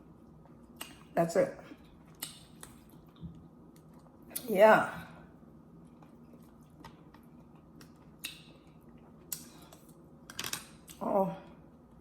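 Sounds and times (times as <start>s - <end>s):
person chewing food: 1.7s - 4.3s, 5.8s - 10.0s.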